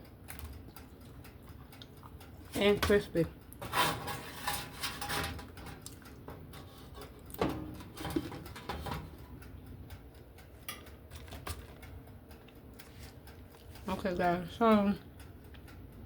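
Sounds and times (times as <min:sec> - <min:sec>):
person chewing crispy food: 0:00.6 - 0:02.2.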